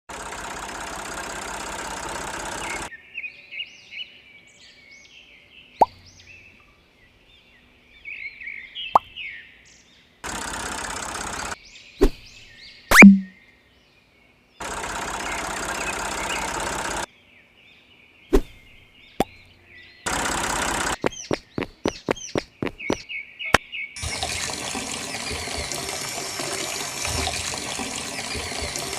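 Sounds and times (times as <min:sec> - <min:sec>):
water spraying from pump: 0:00.1 - 0:02.9, 0:10.2 - 0:11.6, 0:14.6 - 0:17.1, 0:20.1 - 0:23.0, 0:24.0 - 0:28.9
birds chirping: 0:02.2 - 0:10.5, 0:11.4 - 0:28.9
water drop plop: 0:12.9 - 0:13.4
sharp swishing clicks: 0:20.9 - 0:23.0
rushing water spray hiss: 0:24.0 - 0:28.9.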